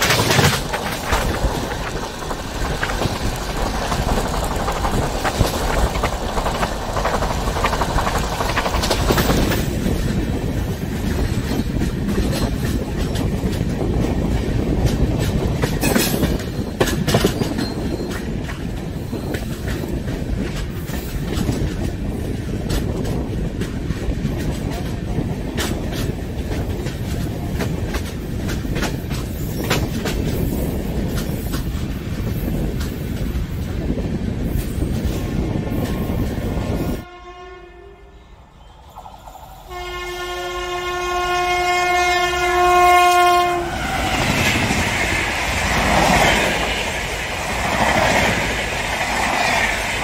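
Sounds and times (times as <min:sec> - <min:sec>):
train wheels clattering over rail joints: 0:00.0 - 0:37.0
wind rushing: 0:00.0 - 0:37.1, 0:43.2 - 0:50.0.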